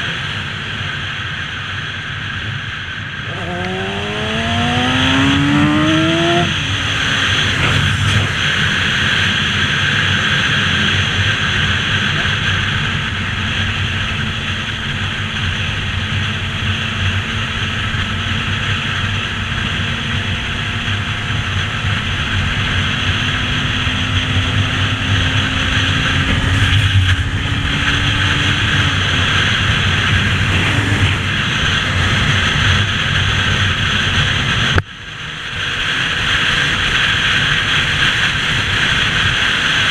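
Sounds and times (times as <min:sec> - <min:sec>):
wind on microphone: 0:02.4 - 0:10.4
motorcycle engine revving: 0:02.4 - 0:34.8.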